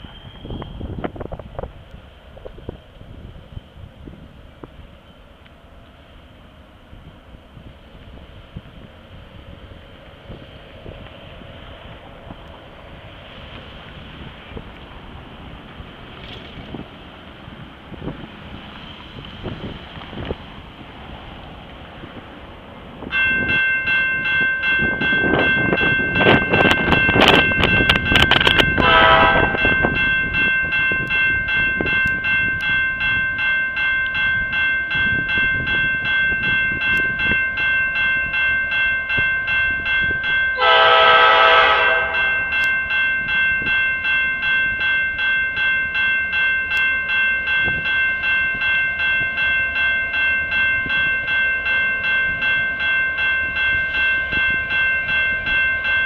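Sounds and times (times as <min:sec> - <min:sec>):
freight train rumble: 0:00.0 - 0:56.0
crossing warning bell ringing: 0:08.9 - 0:56.0
train horn blasts: 0:28.7 - 0:29.9, 0:40.6 - 0:42.6.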